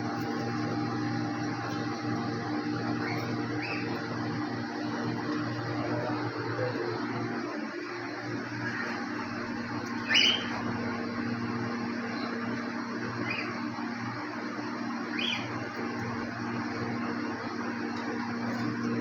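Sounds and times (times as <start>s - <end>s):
steady low hum: 0.0s - 19.0s
cockatiel chirps: 10.0s - 10.6s.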